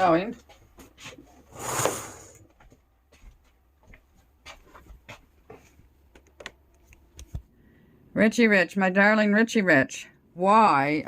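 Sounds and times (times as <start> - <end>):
faint clicks and knocks: 4.6 - 7.5.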